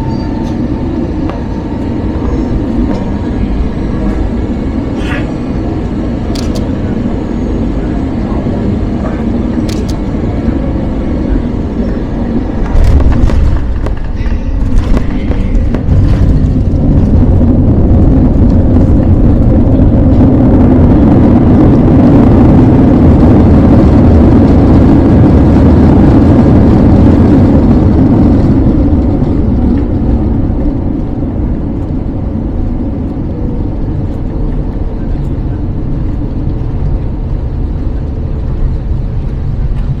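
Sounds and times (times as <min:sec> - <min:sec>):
rushing air: 0:00.0 - 0:30.4
jet engines roaring: 0:00.0 - 0:40.0.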